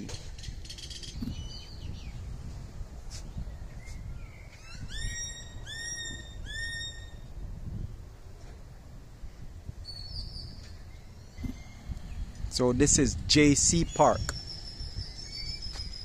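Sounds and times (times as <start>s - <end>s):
wind rumble on microphone: 0.0s - 16.0s
bird harsh calls: 4.2s - 7.2s.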